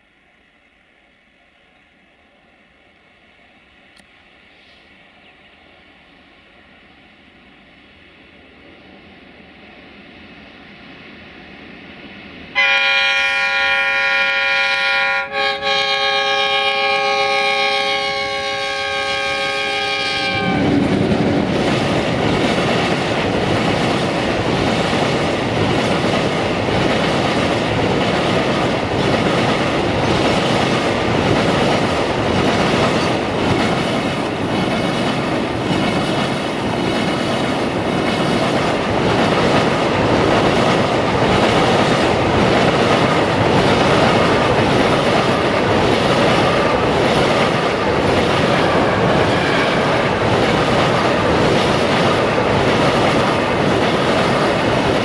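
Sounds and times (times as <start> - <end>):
locomotive air horn: 12.6 - 20.7.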